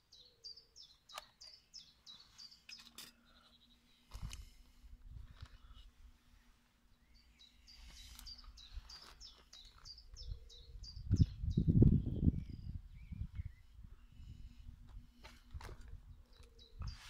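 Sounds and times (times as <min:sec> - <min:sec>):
bird high chirps: 0:00.0 - 0:04.0, 0:07.0 - 0:14.2, 0:16.2 - 0:17.0.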